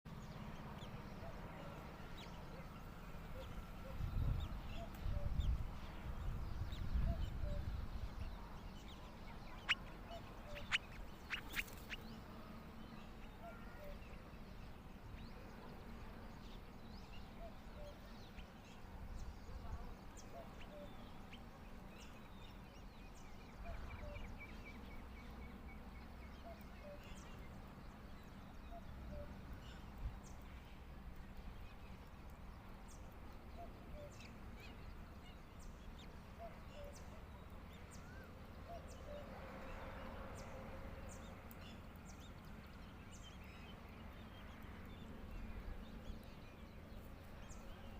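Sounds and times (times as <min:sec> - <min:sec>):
bird chirps: 0:00.1 - 0:12.3, 0:16.4 - 0:30.4, 0:32.9 - 0:39.3
wind on microphone: 0:03.8 - 0:08.5
bird rapid trill: 0:09.5 - 0:12.0.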